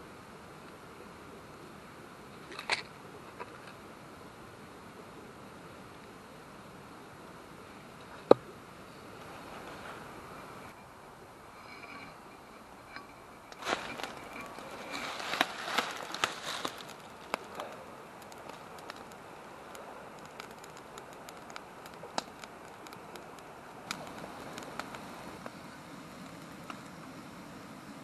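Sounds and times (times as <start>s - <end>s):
fire hiss: 11.4s - 28.0s
campfire crackling and popping: 11.6s - 28.0s.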